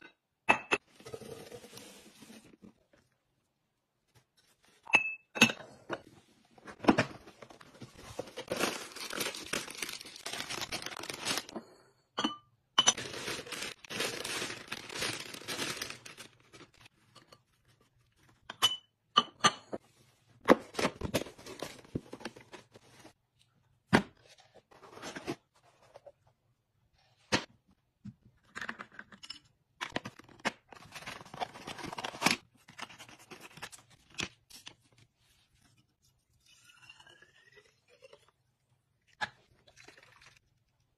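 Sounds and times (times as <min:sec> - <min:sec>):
packaging tearing and crinkling: 0:08.4 - 0:11.5, 0:13.0 - 0:16.8.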